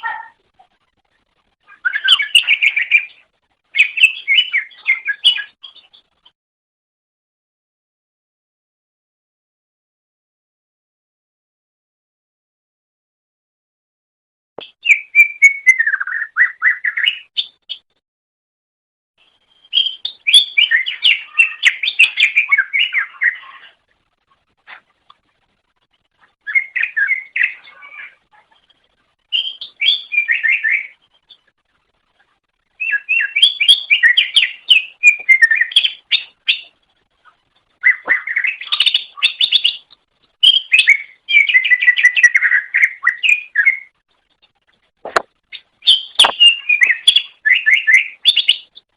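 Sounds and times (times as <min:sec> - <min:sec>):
bird singing warbling phrases: 0:00.0 - 0:00.7, 0:01.6 - 0:06.3, 0:14.6 - 0:17.9, 0:19.2 - 0:23.9, 0:26.4 - 0:31.5, 0:32.7 - 0:44.0, 0:45.1 - 0:48.9.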